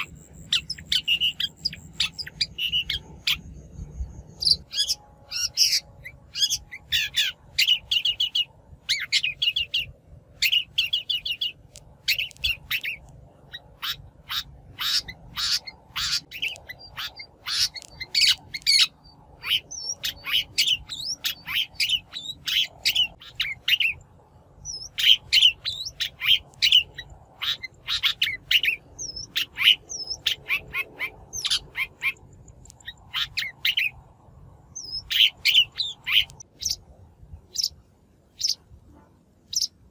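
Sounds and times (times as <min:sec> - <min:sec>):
thin upslurred bird whistles: 0:00.0 - 0:03.4
bird harsh chattering calls: 0:00.0 - 0:03.5, 0:04.4 - 0:24.0, 0:24.6 - 0:32.2, 0:32.8 - 0:34.0, 0:34.8 - 0:36.8, 0:38.4 - 0:38.6, 0:39.5 - 0:39.8.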